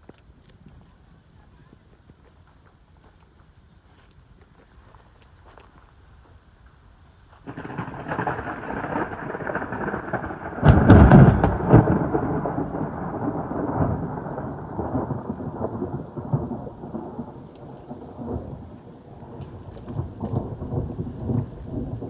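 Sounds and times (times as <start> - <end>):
thunder rumbling and crashing: 7.5 - 22.0.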